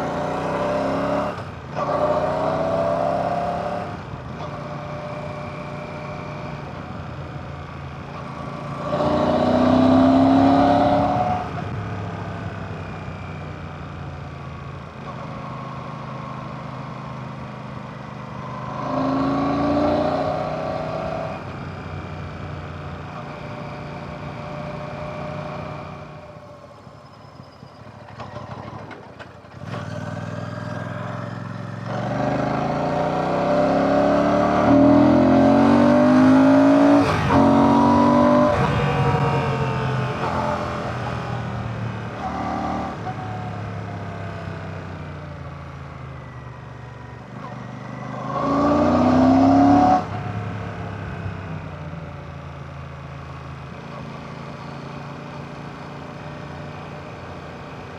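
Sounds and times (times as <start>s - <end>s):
motorcycle engine running: 38.5s - 45.5s.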